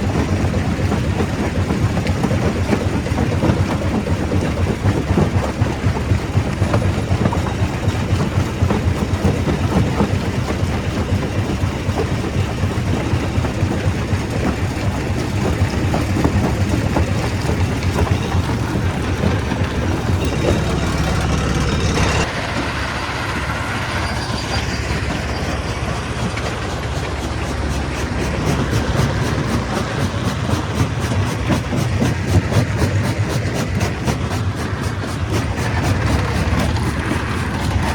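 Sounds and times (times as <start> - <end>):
stone crusher running: 0.0 - 37.9.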